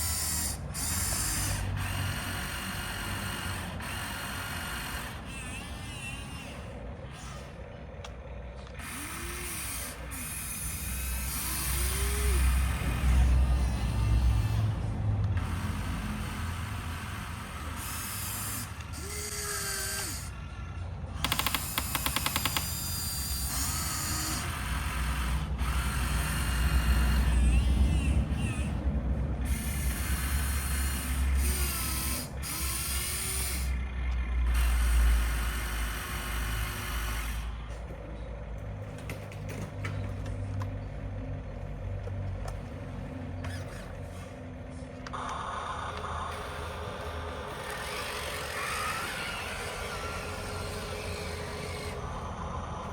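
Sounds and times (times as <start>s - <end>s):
small electric motors whirring: 0.0s - 38.0s, 43.4s - 44.4s, 45.1s - 52.9s
motor whines: 0.0s - 38.2s, 45.1s - 52.9s.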